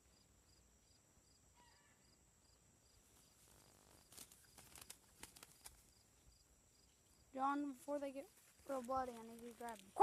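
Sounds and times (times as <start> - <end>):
insects buzzing and chirping: 0.0 - 10.0
soft clicks and rustles: 8.3 - 10.0.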